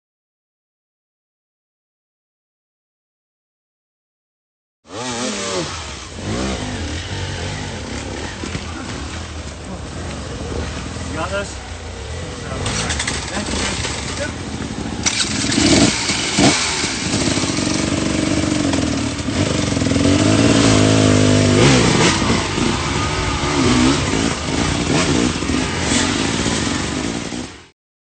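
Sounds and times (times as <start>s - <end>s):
dirt bike engine revving: 4.9s - 27.7s
knocks and clatter: 12.6s - 20.0s.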